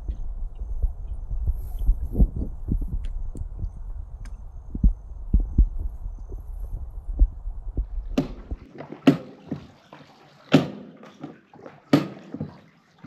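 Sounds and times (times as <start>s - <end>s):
low rumble with dull thumps: 0.0s - 8.7s
water sloshing: 5.4s - 13.0s
sharp water splashes: 8.0s - 13.0s.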